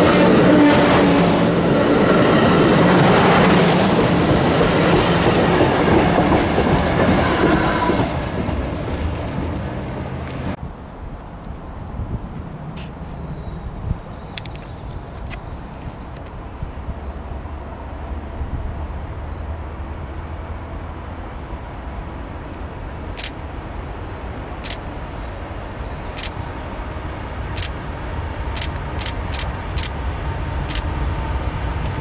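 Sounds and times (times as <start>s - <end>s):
diesel locomotive rumble: 0.0s - 32.0s
sharp clicks: 23.1s - 23.5s, 24.6s - 25.0s, 26.1s - 26.4s, 27.6s - 27.8s, 28.5s - 30.0s, 30.7s - 30.9s.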